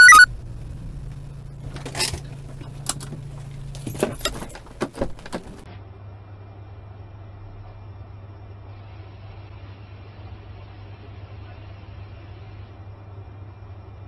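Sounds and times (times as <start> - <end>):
car engine and road hum: 0.0 - 5.7
dull road noise: 0.0 - 5.7
clicks and clinks in car cabin: 1.6 - 5.7.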